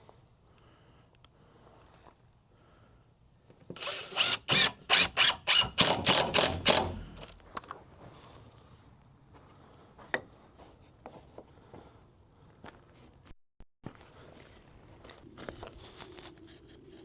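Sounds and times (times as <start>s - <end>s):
power drill short bursts: 3.8s - 7.4s.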